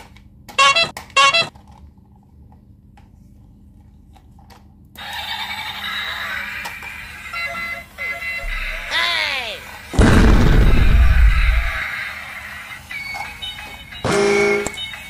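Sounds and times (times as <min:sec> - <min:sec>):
toy electronic tune: 0:00.6 - 0:01.5
toy train electronic toots: 0:00.6 - 0:01.5, 0:05.0 - 0:08.9, 0:12.8 - 0:15.0.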